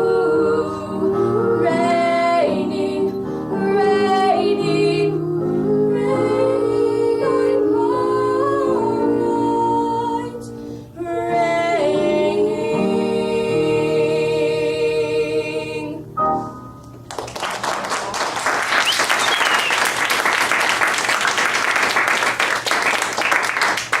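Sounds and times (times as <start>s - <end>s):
women singing: 0.0s - 16.2s
piano accompaniment: 0.0s - 17.1s
audience applauding: 17.1s - 24.0s.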